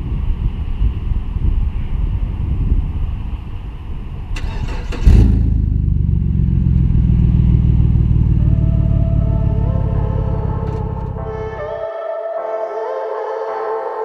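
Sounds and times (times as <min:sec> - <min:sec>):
vehicle engine starting and idling: 0:04.3 - 0:11.7.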